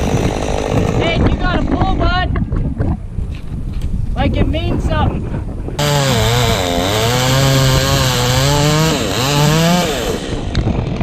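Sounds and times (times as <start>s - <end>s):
chainsaw cutting wood: 0.0s - 1.8s, 5.8s - 11.0s
wind on microphone: 0.0s - 11.0s.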